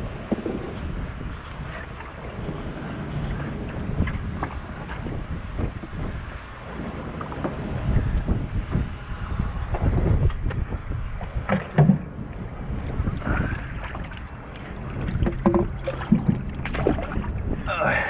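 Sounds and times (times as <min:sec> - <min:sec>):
wind buffeting microphone: 0:00.0 - 0:18.0
knocks and rustles: 0:11.2 - 0:12.2.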